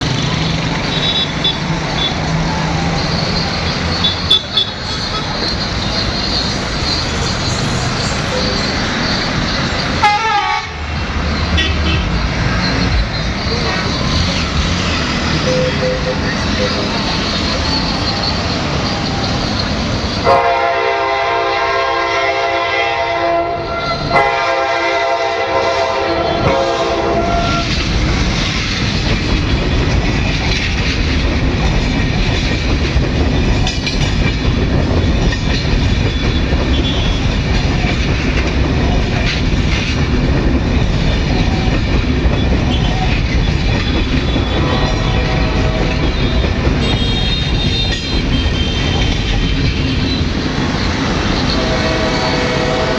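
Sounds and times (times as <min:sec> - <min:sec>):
train wheels clattering over rails: 0:00.0 - 0:21.6, 0:23.9 - 0:52.9
train horn blasts: 0:10.0 - 0:10.9, 0:11.5 - 0:12.2, 0:20.2 - 0:27.8, 0:36.7 - 0:37.3, 0:44.2 - 0:49.5, 0:51.3 - 0:52.9.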